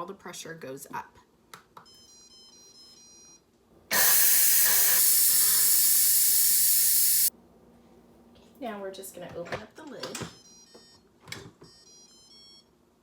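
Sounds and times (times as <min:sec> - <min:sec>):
steam venting hiss: 0:03.9 - 0:07.3.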